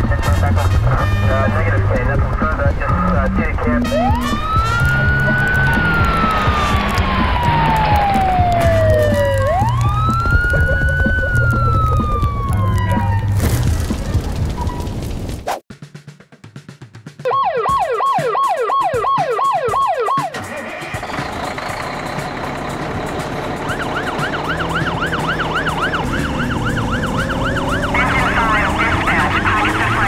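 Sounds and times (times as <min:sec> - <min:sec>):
rumbling noise: 0:00.0 - 0:15.5
siren warbling: 0:03.8 - 0:13.4, 0:17.3 - 0:23.0, 0:23.6 - 0:30.0
toy siren yelping: 0:04.0 - 0:13.3, 0:17.3 - 0:21.0.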